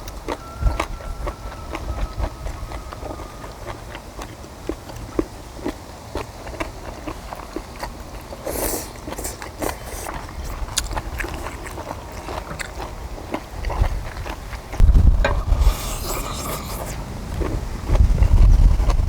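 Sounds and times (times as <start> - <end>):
people chewing food: 0.0 - 19.0
wet mouth clicks and smacks: 15.3 - 17.5.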